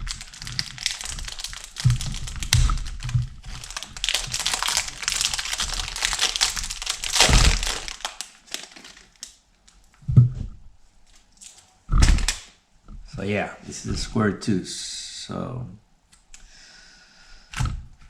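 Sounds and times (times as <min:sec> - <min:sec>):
packaging crinkling and rustling: 0:00.0 - 0:10.0, 0:11.0 - 0:12.5
short low thump: 0:10.1 - 0:10.6.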